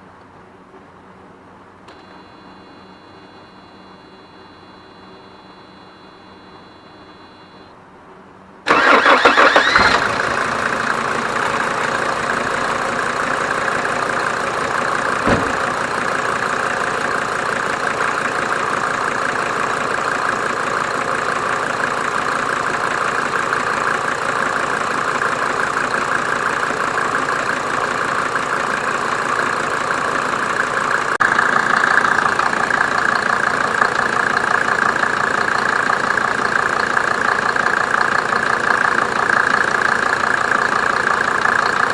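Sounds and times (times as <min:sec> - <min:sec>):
diesel engine starting and idling: 0:08.7 - 0:41.9.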